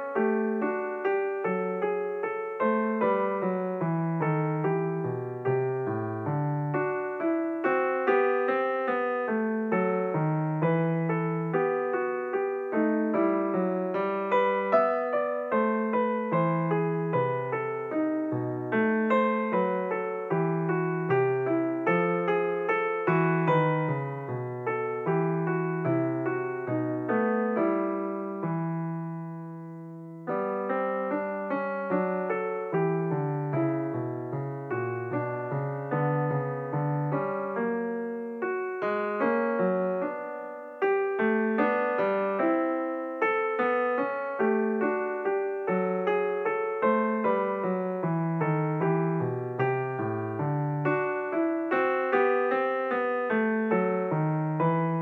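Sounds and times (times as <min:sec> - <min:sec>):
solo piano music: 0:00.0 - 0:55.0.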